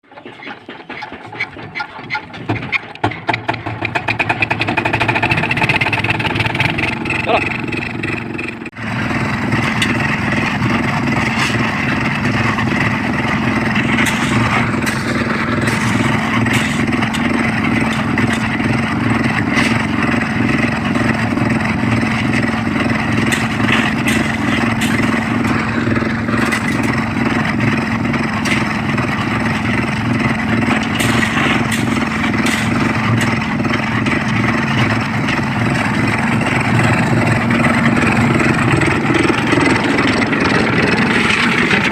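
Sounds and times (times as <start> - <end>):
clatter and scraping knocks: 0.0 - 8.8, 9.5 - 41.9
concrete mixer running: 0.0 - 41.9.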